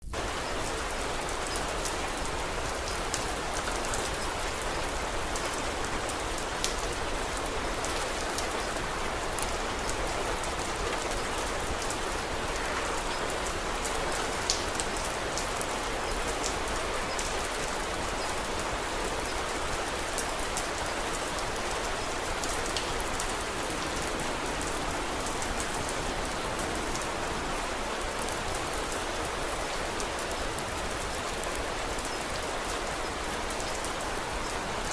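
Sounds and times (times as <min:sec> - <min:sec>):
steady rain hiss: 0:00.0 - 0:34.9
sharp raindrop ticks: 0:06.6 - 0:06.9, 0:14.5 - 0:17.4.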